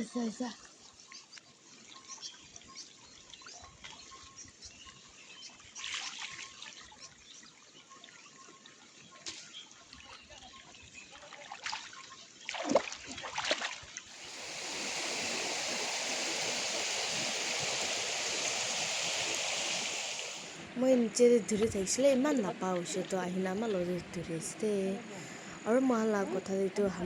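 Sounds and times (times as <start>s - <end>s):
stream water trickling: 0.0s - 27.0s
small water splashes: 0.5s - 20.6s
rush of flowing water: 11.5s - 27.0s.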